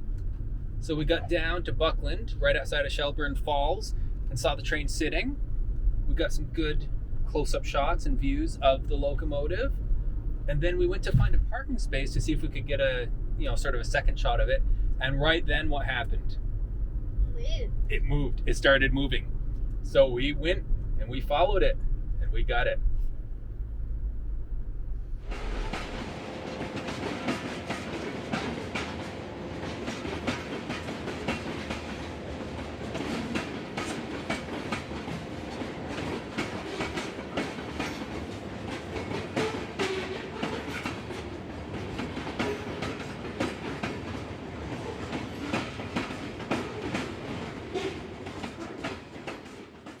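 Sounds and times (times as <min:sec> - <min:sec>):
train wheels clacking on rails: 0:25.2 - 0:50.0.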